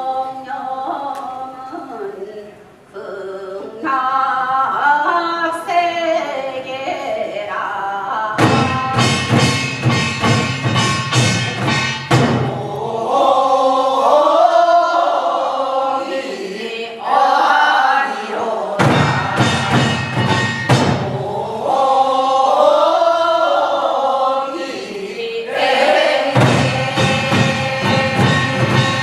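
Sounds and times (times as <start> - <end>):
several voices singing folk song: 0.0 - 9.5, 11.5 - 29.0
sharp drum strokes: 8.4 - 13.4, 18.0 - 22.6, 25.5 - 29.0.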